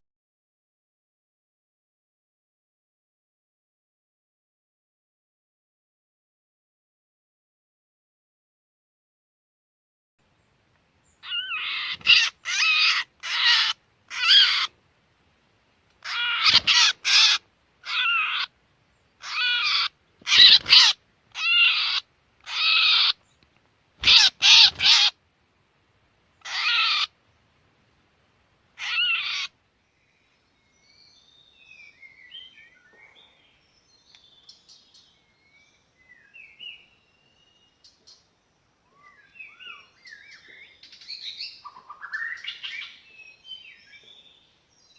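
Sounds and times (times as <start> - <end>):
faint bird chirping: 10.3 - 14.7, 28.8 - 44.9
bird giving harsh calls: 11.2 - 14.7, 16.0 - 18.5, 19.2 - 23.2, 24.0 - 25.2, 26.4 - 27.2, 28.8 - 29.6.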